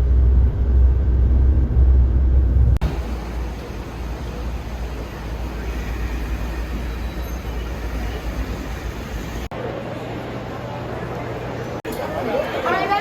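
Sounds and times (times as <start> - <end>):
vehicle rumble and road noise: 0.0 - 9.5.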